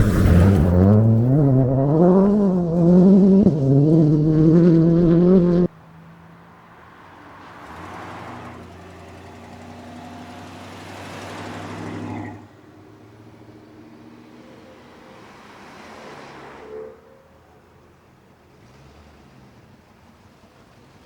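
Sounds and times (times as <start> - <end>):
loud car engine revving: 0.0 - 5.8
car driving past: 0.0 - 17.4.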